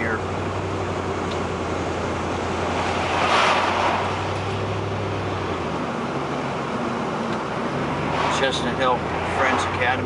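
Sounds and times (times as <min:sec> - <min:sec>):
car engine and tyre hum: 0:00.0 - 0:10.0.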